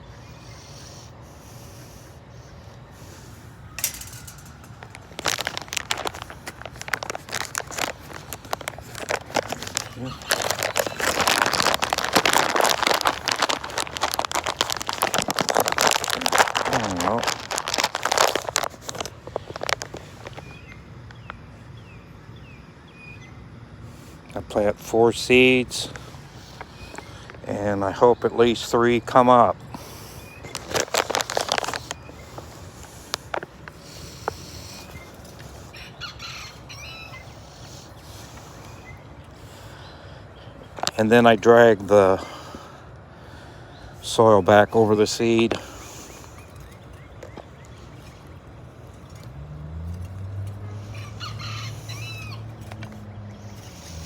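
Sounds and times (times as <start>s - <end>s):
bird calling: 0.0s - 24.3s, 24.9s - 49.3s, 50.6s - 54.0s
seed bag crinkling: 3.0s - 21.2s, 25.3s - 36.5s, 40.7s - 42.5s, 44.0s - 54.0s.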